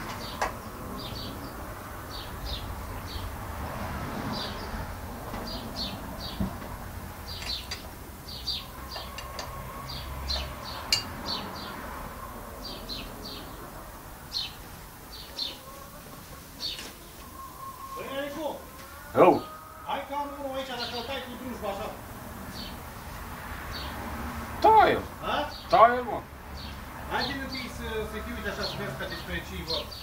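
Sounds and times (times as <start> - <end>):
small birds chirping: 0.0 - 3.4, 4.3 - 30.0.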